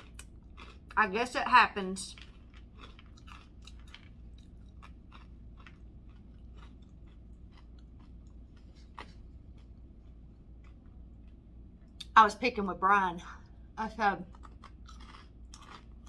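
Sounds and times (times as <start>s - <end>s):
person chewing food: 0.0s - 1.0s, 2.1s - 12.1s, 14.3s - 16.0s.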